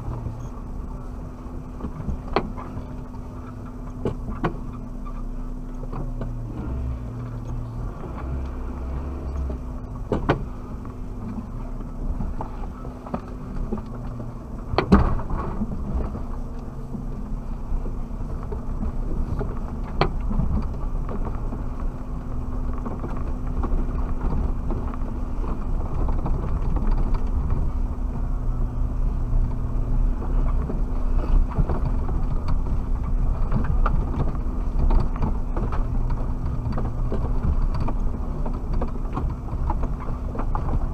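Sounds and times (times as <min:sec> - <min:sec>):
vehicle engine rumble off-road: 0:00.0 - 0:40.9.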